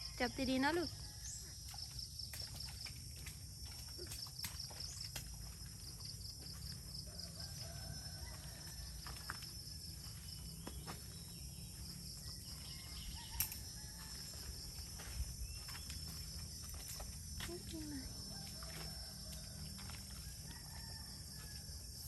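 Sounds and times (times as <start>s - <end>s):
rooster crowing faintly: 7.0s - 9.4s, 18.3s - 21.8s.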